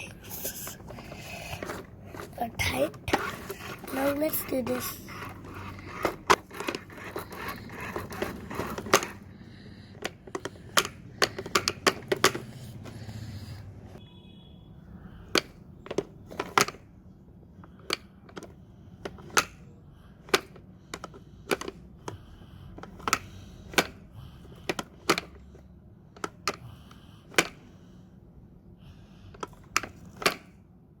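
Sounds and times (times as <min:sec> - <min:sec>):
plastic toy parts clicking: 0:09.9 - 0:13.0, 0:15.3 - 0:16.8, 0:20.2 - 0:22.2.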